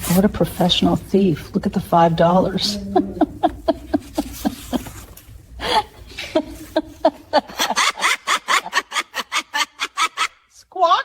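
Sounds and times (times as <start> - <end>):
person laughing: 2.4 - 10.4.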